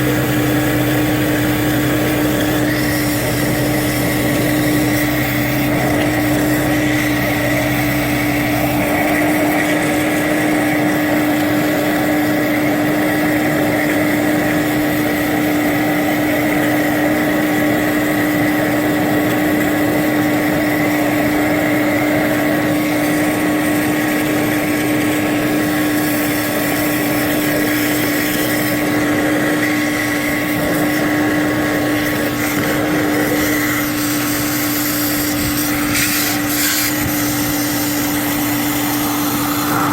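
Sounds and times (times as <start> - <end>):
low hum: 0.0 - 12.3
motor whine: 0.0 - 39.9.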